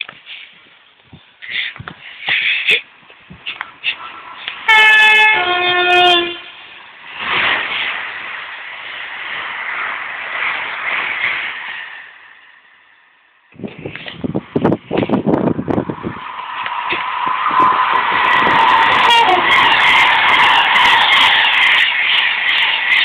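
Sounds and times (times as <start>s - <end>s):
train wheels rushing on rail: 0.0s - 23.0s
two-tone train horn: 4.0s - 6.6s, 19.0s - 19.8s.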